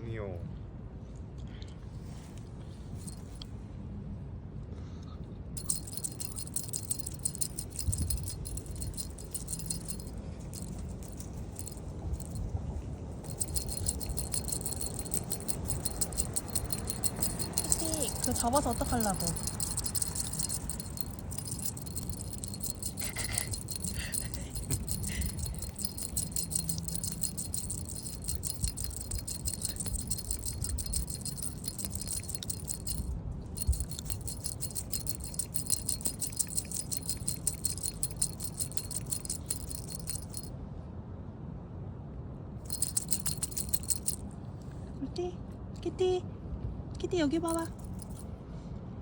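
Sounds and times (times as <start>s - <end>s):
light jingling rattle: 3.0s - 3.4s, 5.6s - 40.5s, 42.6s - 44.3s, 47.4s - 48.3s.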